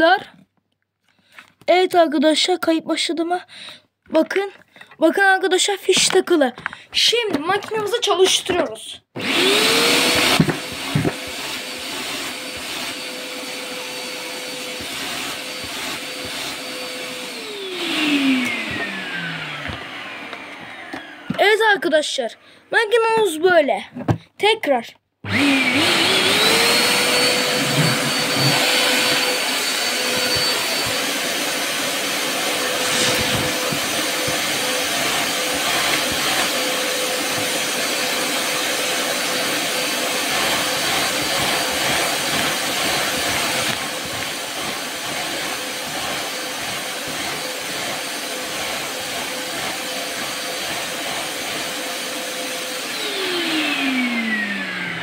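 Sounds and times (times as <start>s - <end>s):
vacuum cleaner motor whining: 9.2s - 21.6s, 25.2s - 55.0s.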